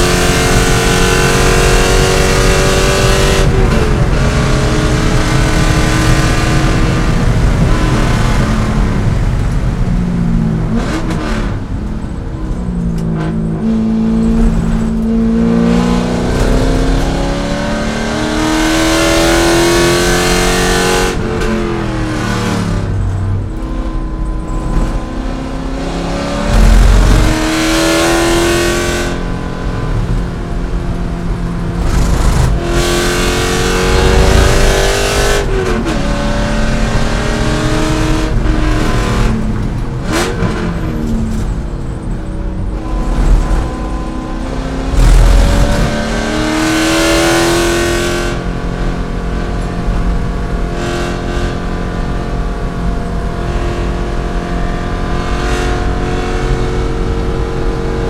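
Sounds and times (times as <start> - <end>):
car engine shifting gears: 0.0 - 58.0
wind and road noise: 0.0 - 58.0
loud low thump: 26.4 - 27.8.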